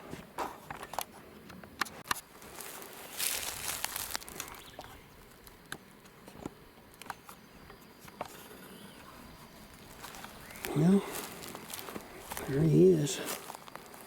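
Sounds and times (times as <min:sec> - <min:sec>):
footsteps through dry leaves: 0:02.3 - 0:05.4, 0:09.6 - 0:14.0.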